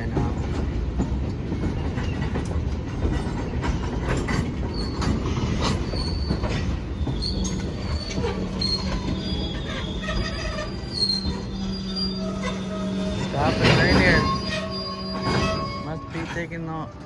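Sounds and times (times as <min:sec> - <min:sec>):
clanks and knocks from cars: 0:00.0 - 0:11.5
freight train rumble: 0:00.0 - 0:17.0
wheel squeals: 0:03.2 - 0:17.0.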